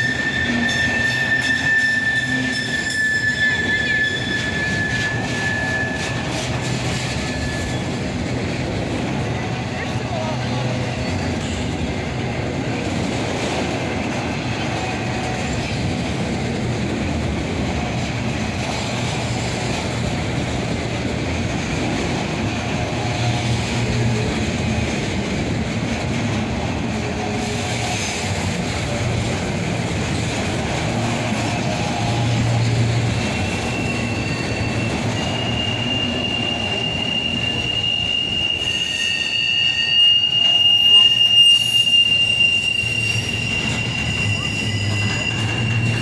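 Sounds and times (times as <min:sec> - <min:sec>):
faint wheel squeals: 0:00.0 - 0:08.0, 0:31.3 - 0:46.0
freight train wheels rumbling and clattering: 0:00.0 - 0:46.0.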